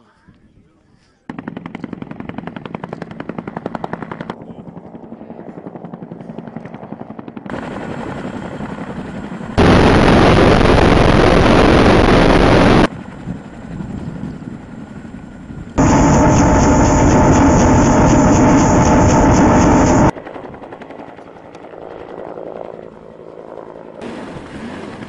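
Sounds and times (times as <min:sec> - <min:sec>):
helicopter rotor beating: 0:01.3 - 0:25.0
loud rushing noise: 0:09.6 - 0:12.9, 0:15.8 - 0:20.1.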